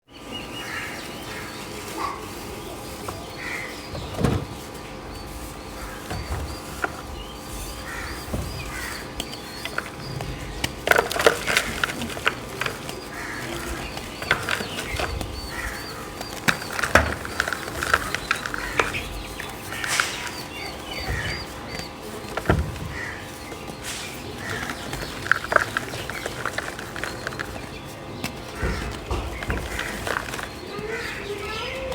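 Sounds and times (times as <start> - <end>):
chalk crunching and crumbling: 5.3 - 31.9
dull thuds: 5.8 - 31.1.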